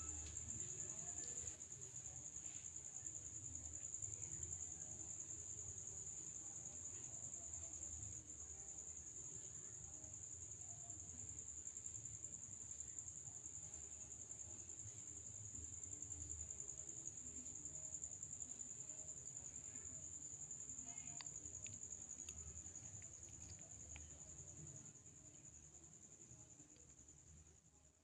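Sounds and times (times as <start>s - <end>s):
crickets chirping: 0.0s - 28.0s
faint clicks: 20.8s - 24.3s.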